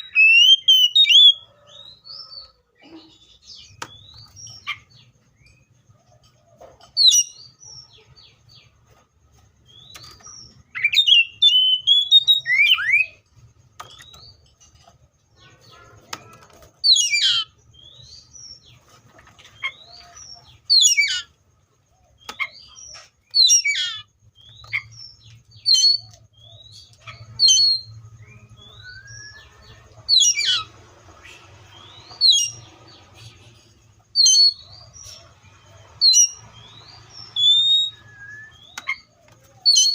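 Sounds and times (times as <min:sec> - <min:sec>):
bird singing whistled phrases: 0:00.0 - 0:01.4, 0:10.7 - 0:13.2, 0:27.4 - 0:29.6, 0:37.3 - 0:39.9.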